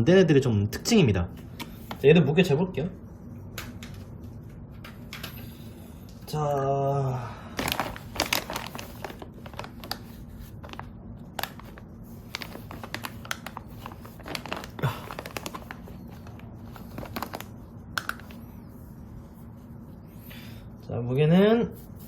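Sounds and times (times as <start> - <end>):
steady low hum: 0.0 - 22.0
hands handling plastic: 7.6 - 18.5.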